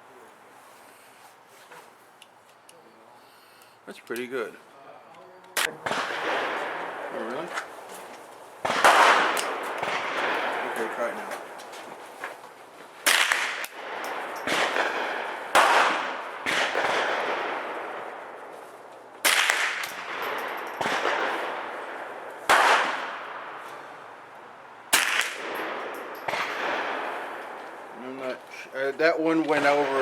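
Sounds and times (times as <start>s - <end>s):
rifle shots with echo: 5.6s - 7.9s, 8.6s - 11.7s, 13.0s - 18.6s, 19.2s - 24.3s, 24.9s - 28.0s, 29.4s - 30.0s.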